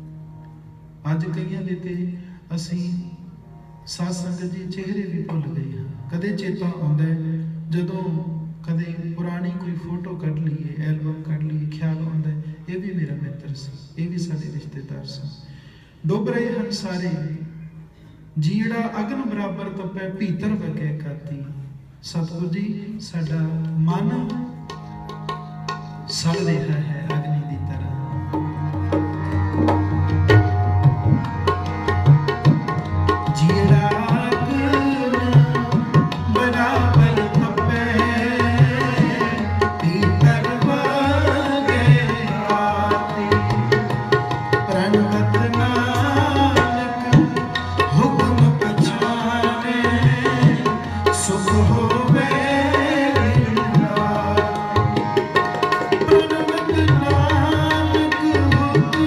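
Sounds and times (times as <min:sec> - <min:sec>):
tabla rhythm: 0:05.0 - 0:06.5, 0:23.6 - 0:59.0.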